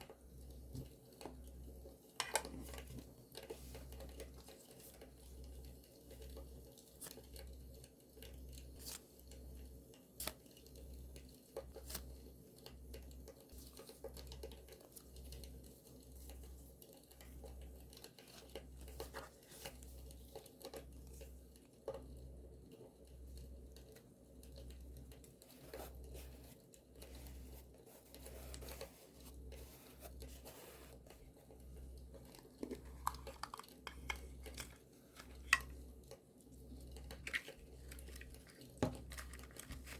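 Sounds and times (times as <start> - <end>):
paper tearing and crinkling: 37.2 - 39.9.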